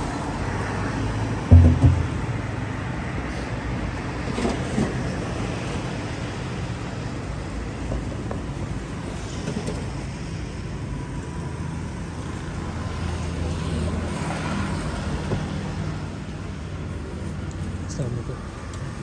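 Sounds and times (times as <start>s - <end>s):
roadside traffic noise: 0.0s - 19.0s
faint knocks: 1.5s - 2.8s.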